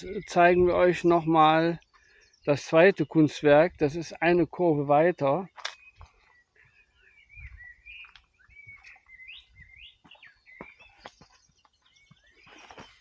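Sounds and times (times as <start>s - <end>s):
songbirds chirping and warbling: 0.0s - 13.0s.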